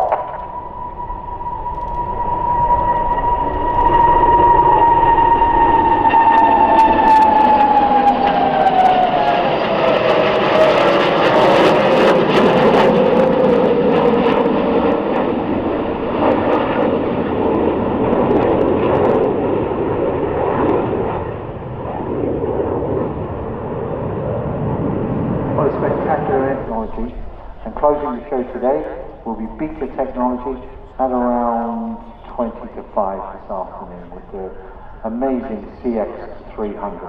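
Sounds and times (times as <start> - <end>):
jet aircraft passing overhead: 0.0 - 37.0.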